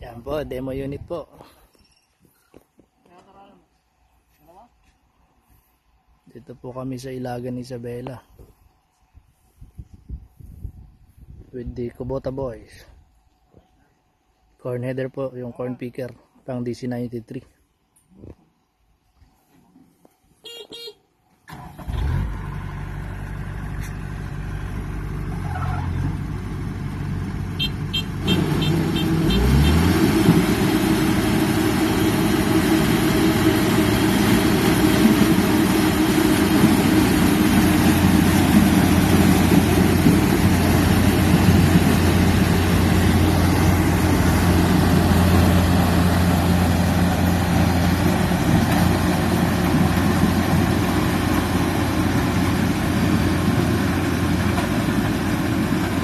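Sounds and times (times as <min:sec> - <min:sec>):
combine harvester diesel engine: 0:21.5 - 0:56.0.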